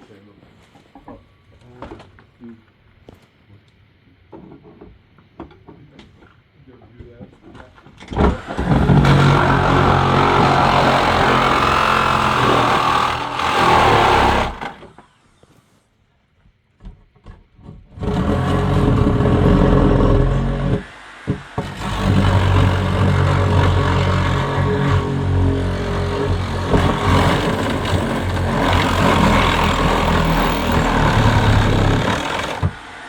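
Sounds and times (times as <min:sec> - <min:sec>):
engine running: 0:08.8 - 0:14.7, 0:21.6 - 0:32.9.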